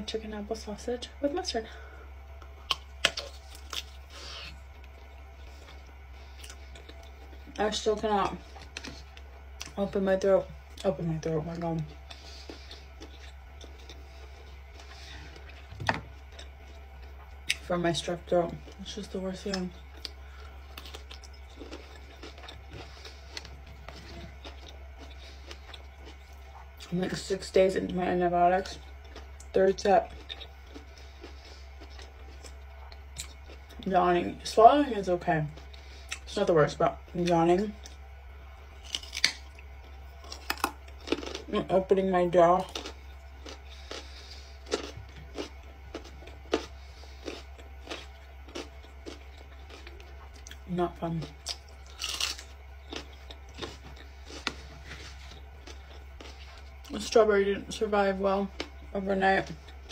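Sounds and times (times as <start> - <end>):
steady low hum: 0.0 - 59.9
mouth chewing: 11.5 - 17.7, 19.4 - 26.9, 28.7 - 33.8, 42.6 - 56.9.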